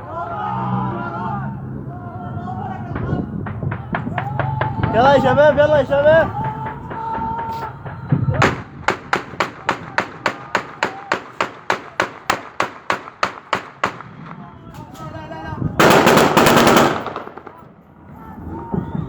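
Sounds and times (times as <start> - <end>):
rapid automatic gunfire: 15.8 - 17.7
single gunshots: 15.8 - 17.7.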